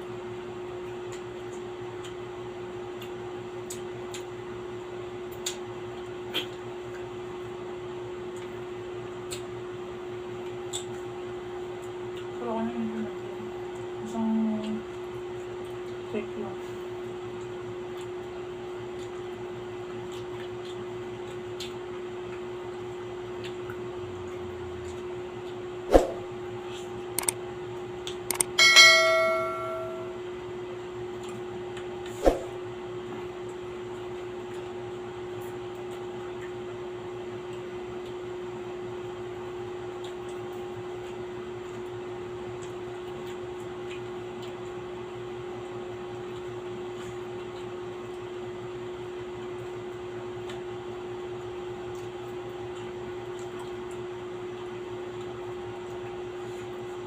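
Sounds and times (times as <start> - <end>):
steady hum: 25.5 - 27.4, 28.3 - 30.4, 32.1 - 32.6
bright clink: 28.4 - 30.2.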